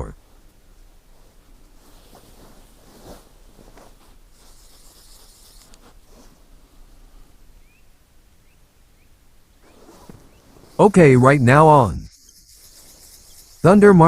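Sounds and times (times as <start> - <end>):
clothing and gear rustling: 1.1 - 7.2, 9.6 - 10.8.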